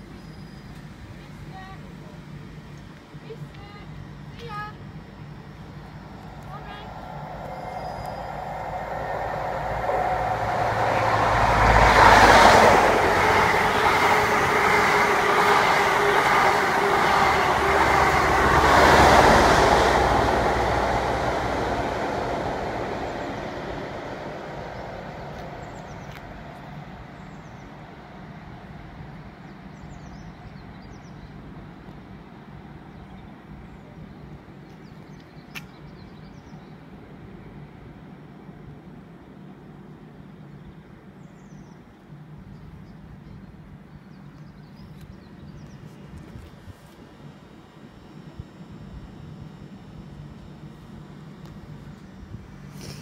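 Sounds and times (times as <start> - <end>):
passenger train passing: 0.8 - 34.7.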